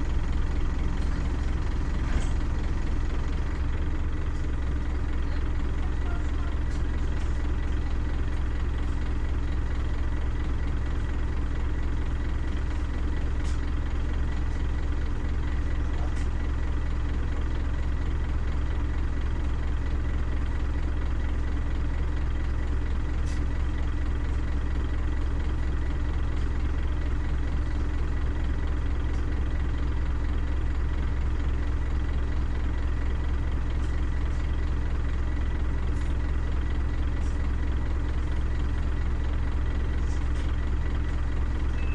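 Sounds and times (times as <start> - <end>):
bus engine drone: 0.0 - 41.9.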